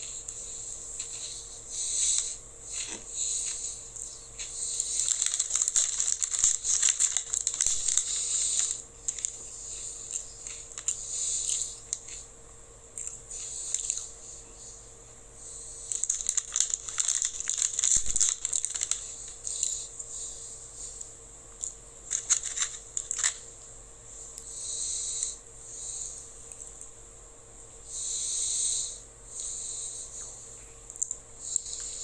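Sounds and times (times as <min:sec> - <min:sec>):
plastic snack packet crinkling: 0:04.4 - 0:09.4, 0:15.9 - 0:19.9, 0:22.1 - 0:23.4.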